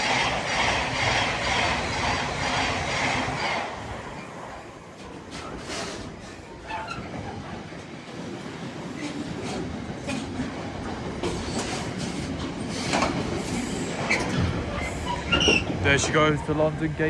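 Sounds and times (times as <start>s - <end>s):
train wheels rumbling on rail: 0.0s - 17.0s
wheels clicking over rail joints: 4.9s - 16.8s.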